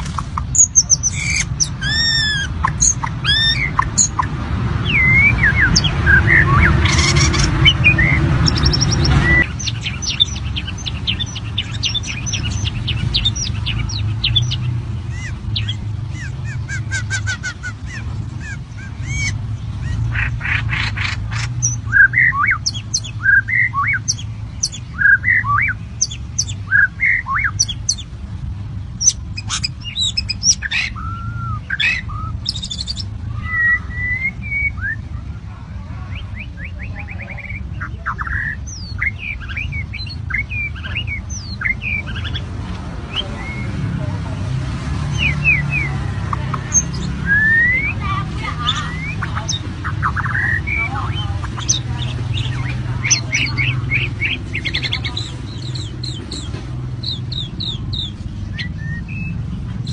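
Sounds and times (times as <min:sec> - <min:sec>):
loud rushing noise: 0:00.0 - 0:16.2
birds chirping and squawking: 0:00.0 - 0:59.9.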